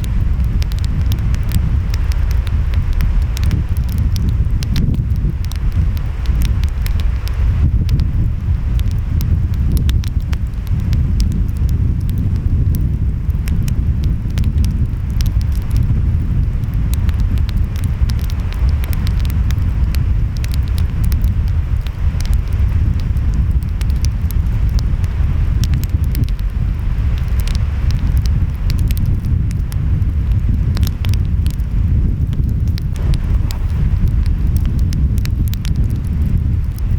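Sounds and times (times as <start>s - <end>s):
wind: 0.0s - 36.9s
wood fire crackling: 0.0s - 36.9s
waves rumbling: 32.8s - 36.9s.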